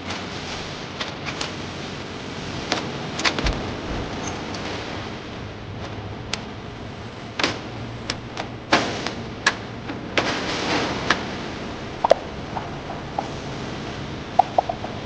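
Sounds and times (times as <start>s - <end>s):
factory machinery running: 0.1s - 15.0s
sharp clicks and knocks: 14.4s - 15.0s.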